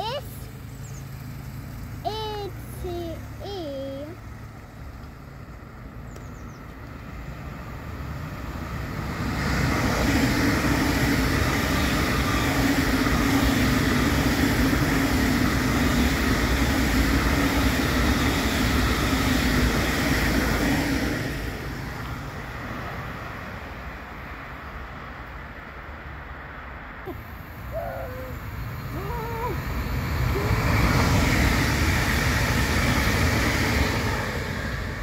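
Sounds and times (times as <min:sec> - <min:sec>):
train passing: 0:00.0 - 0:35.0.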